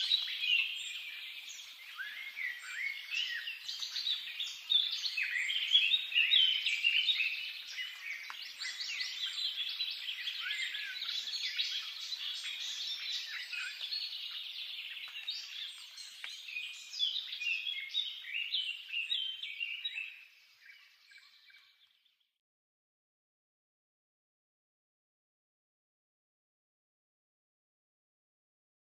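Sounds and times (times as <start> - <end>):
chorus of small birds chirping: 0.0 - 22.3.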